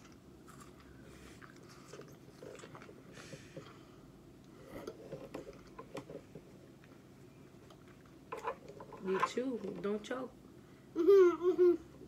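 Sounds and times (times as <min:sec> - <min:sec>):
chewing fruit: 0:00.0 - 0:03.8.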